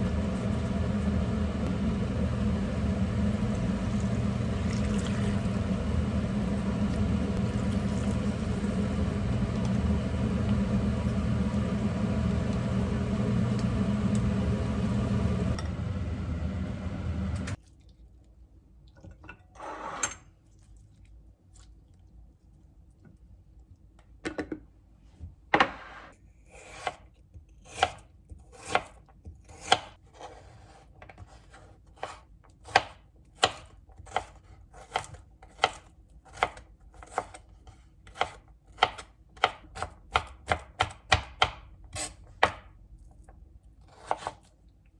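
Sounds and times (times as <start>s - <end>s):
kitchen appliance motor humming: 0.0s - 17.6s
knife chopping on cutting board: 38.1s - 42.7s, 43.9s - 44.4s.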